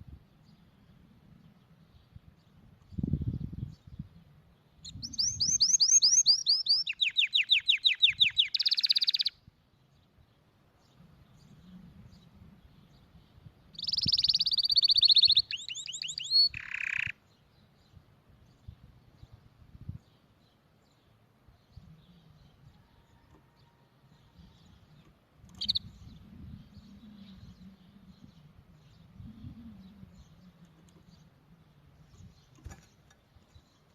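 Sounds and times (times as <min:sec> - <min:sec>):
canary singing: 0:04.8 - 0:09.4, 0:13.7 - 0:17.6, 0:21.8 - 0:33.9.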